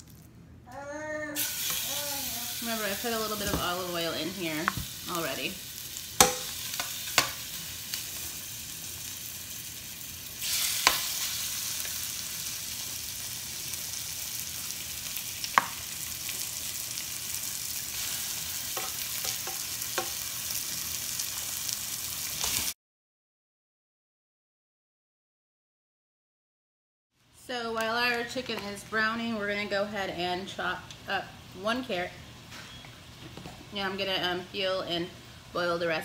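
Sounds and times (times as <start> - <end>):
chicken sizzling in hot oil: 1.4 - 22.8.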